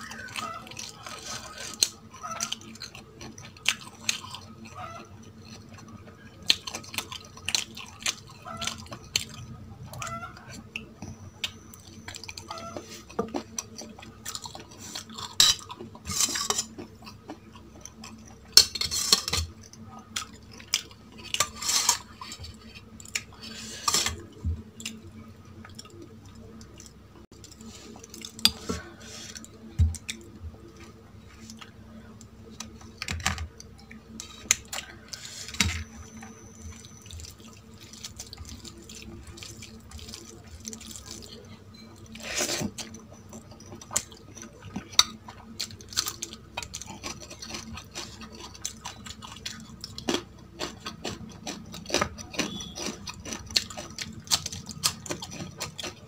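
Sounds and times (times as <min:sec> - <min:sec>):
cutlery clinking and scraping on plate: 0:15.4 - 0:16.8, 0:18.6 - 0:19.5.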